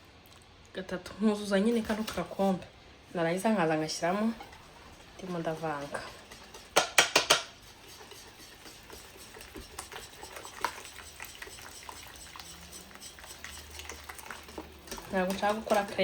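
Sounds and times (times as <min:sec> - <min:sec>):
stirring batter in bowl: 0:01.5 - 0:02.7, 0:03.4 - 0:16.0
utensil clinking against bowl: 0:04.4 - 0:16.0.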